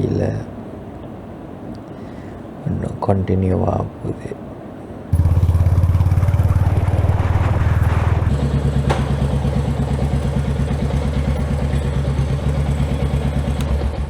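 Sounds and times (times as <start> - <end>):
vehicle engine running: 5.2 - 14.0.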